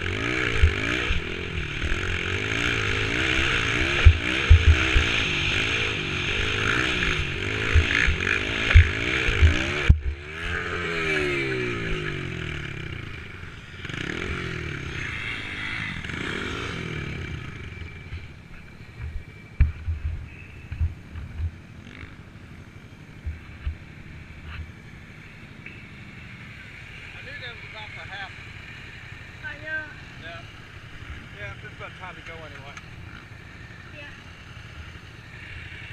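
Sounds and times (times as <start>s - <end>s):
dirt bike engine revving: 0.0s - 35.9s
low thuds: 18.0s - 21.8s, 23.2s - 24.0s.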